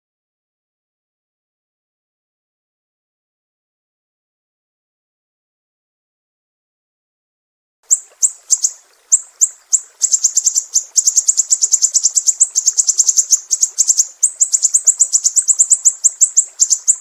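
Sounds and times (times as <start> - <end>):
songbird chirping: 7.9 - 17.0.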